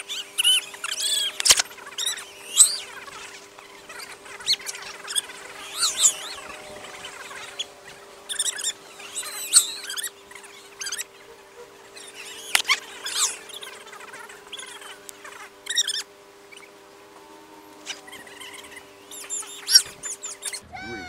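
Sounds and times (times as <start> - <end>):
birds chirping: 0.0 - 21.0
faint steady hum: 0.0 - 21.0
sharp click: 1.4 - 1.7.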